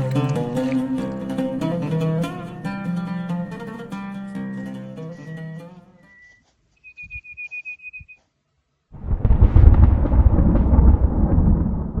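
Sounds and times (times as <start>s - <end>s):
loud low rumble: 9.0s - 12.0s.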